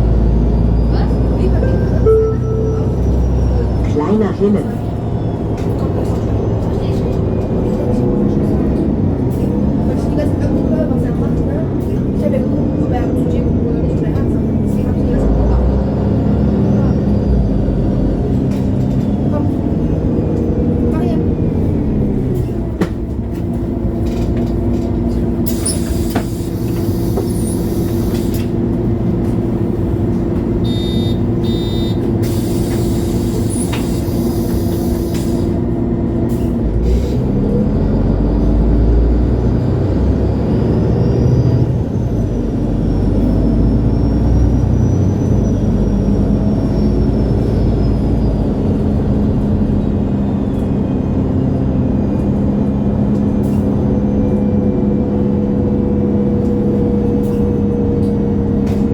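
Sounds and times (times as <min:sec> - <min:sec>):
bus diesel engine running: 0:00.0 - 0:58.9
short beeping tone: 0:01.6 - 0:03.8, 0:30.6 - 0:32.0.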